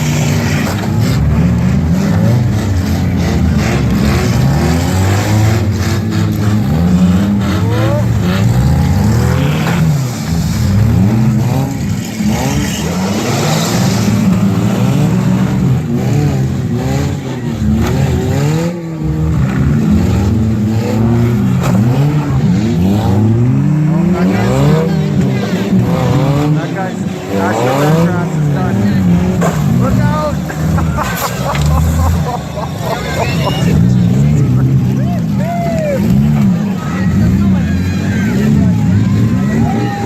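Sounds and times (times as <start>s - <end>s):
car engines revving: 0.0s - 40.0s
cars colliding knocks: 29.2s - 33.0s.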